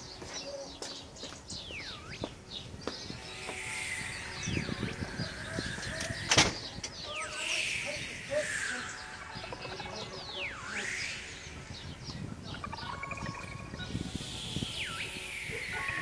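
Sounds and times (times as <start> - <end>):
bird whistling falling notes: 3.1 - 12.2, 13.2 - 16.0.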